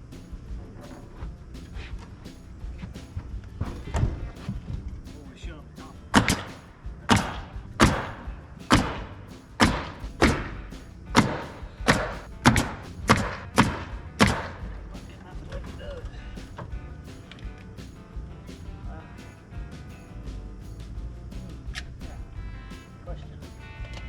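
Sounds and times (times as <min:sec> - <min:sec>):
nails hammered into wooden boards: 0:06.1 - 0:14.9.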